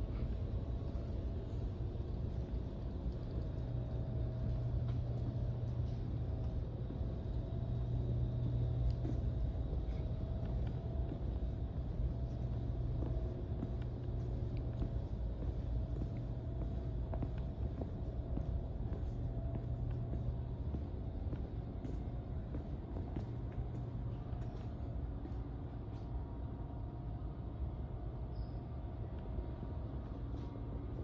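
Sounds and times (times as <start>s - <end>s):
faint steady hum: 0.0s - 31.0s
low background rumble: 0.0s - 31.0s.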